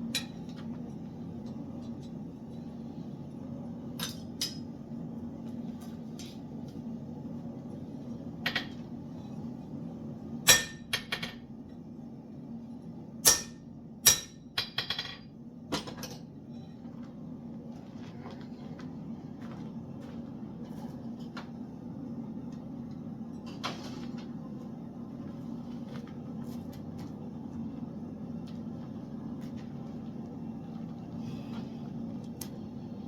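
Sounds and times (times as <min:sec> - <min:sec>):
steady low hum: 0:00.0 - 0:33.0
hammer striking metal: 0:10.5 - 0:11.2, 0:13.2 - 0:14.9.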